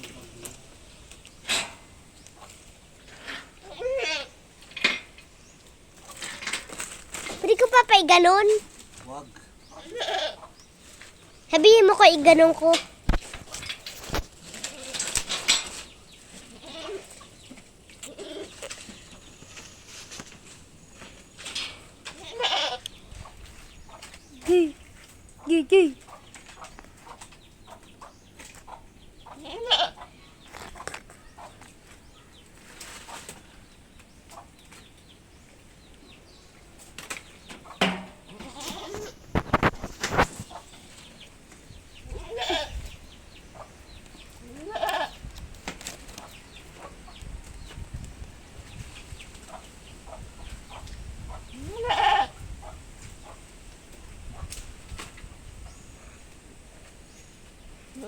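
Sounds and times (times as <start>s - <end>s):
goats bleating: 3.6s - 4.4s, 9.8s - 10.4s, 16.5s - 17.1s, 18.0s - 18.6s, 22.2s - 22.9s, 29.4s - 30.0s, 38.3s - 39.2s, 42.1s - 42.8s, 44.5s - 45.2s, 51.6s - 52.3s
knocks: 37.8s - 38.3s.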